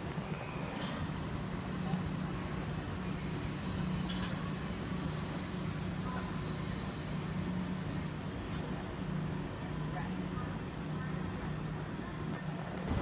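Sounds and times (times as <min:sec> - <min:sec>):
trains humming and rumbling: 0:00.0 - 0:09.6, 0:12.7 - 0:13.0.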